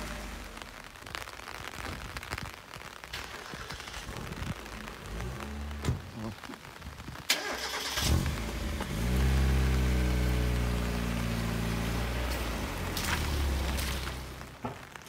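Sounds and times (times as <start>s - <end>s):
car engine starting and idling: 3.1s - 6.4s, 7.3s - 14.6s.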